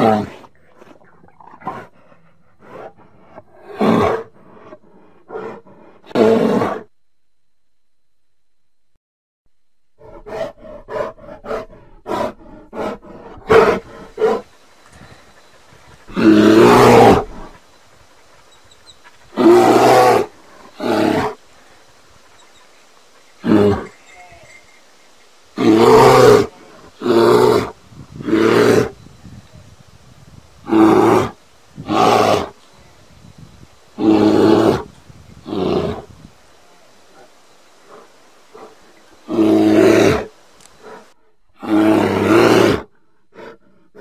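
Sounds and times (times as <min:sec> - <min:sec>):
bear roaring: 0:10.0 - 0:24.4, 0:25.6 - 0:29.0, 0:30.6 - 0:32.6, 0:33.9 - 0:36.2, 0:37.0 - 0:44.0.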